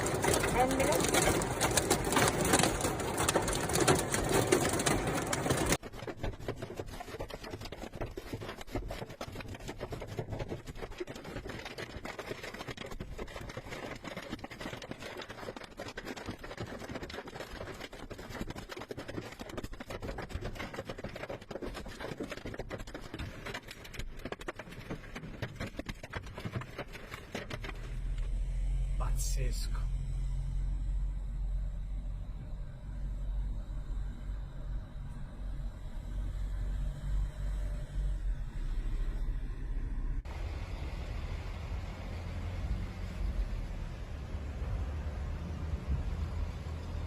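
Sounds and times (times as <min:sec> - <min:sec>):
hail pelting hard surfaces: 0:00.0 - 0:28.3.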